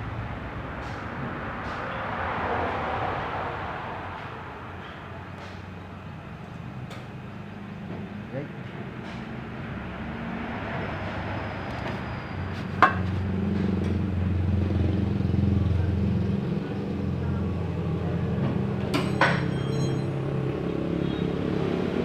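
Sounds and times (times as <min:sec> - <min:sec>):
vehicle engine running: 0:12.6 - 0:19.3.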